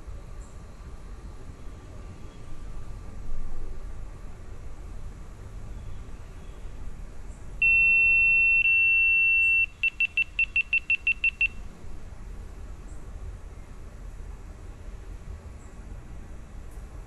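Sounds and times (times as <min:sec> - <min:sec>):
long high beep: 0:07.6 - 0:11.6
short electronic beeps: 0:07.6 - 0:11.6.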